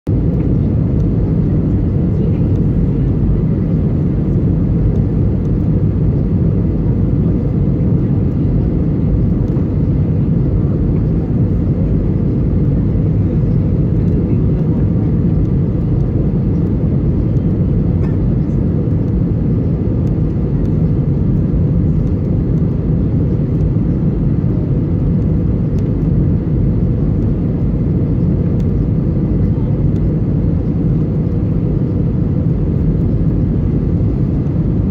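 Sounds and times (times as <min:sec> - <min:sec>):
airliner engines rumbling in cabin: 0:00.1 - 0:34.9.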